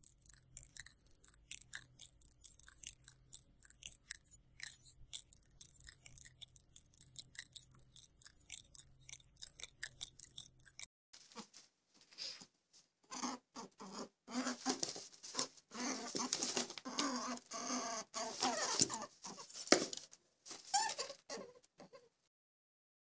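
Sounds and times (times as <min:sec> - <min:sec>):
crisp clicks and ticks: 0:00.0 - 0:10.9, 0:16.1 - 0:17.2.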